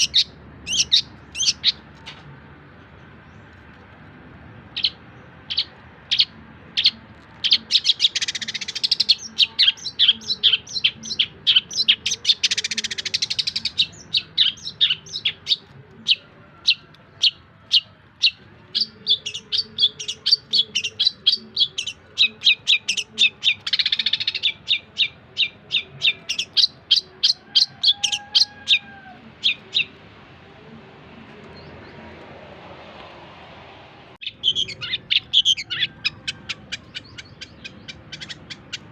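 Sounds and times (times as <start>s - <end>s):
harsh rasping bird calls: 0.0s - 2.3s, 4.6s - 30.0s, 34.2s - 38.9s
bird chirping sharply: 34.2s - 38.9s.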